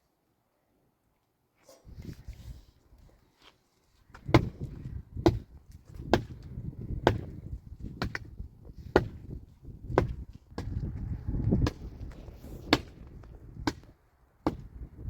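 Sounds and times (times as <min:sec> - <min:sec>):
sharp chopping strikes: 0:04.3 - 0:04.6, 0:08.9 - 0:09.2, 0:12.6 - 0:14.7.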